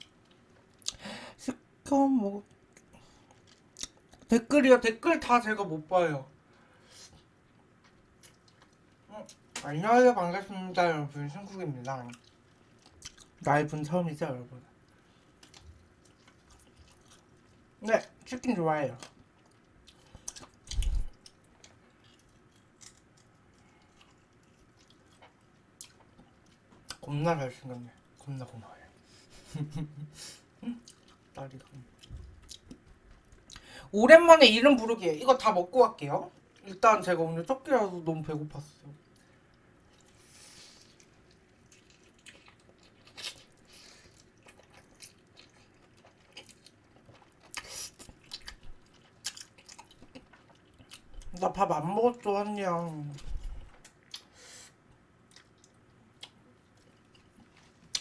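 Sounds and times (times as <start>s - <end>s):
person chewing chicken: 7.2s - 9.5s, 12.1s - 13.4s, 14.7s - 17.8s, 19.0s - 27.0s, 30.8s - 33.7s, 39.0s - 51.2s, 53.2s - 58.0s.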